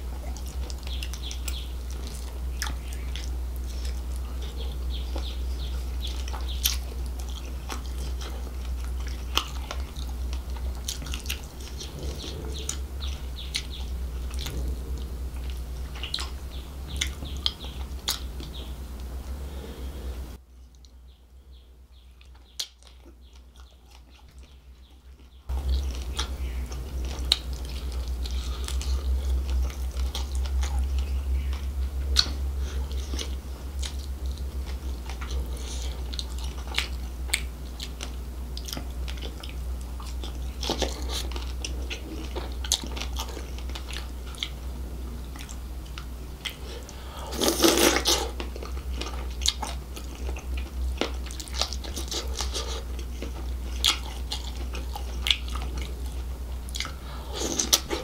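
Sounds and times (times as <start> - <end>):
close chewing with small crunches: 0.0 - 19.8, 20.6 - 58.0.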